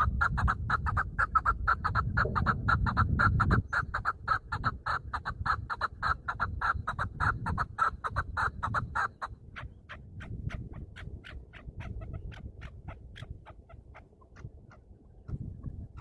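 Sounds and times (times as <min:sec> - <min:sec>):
partridge clucking: 0:01.8 - 0:03.6.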